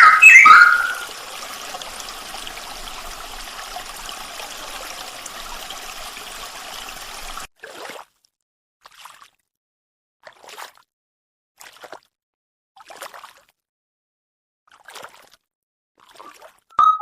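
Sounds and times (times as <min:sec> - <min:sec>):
rush of running water: 0:00.0 - 0:07.5.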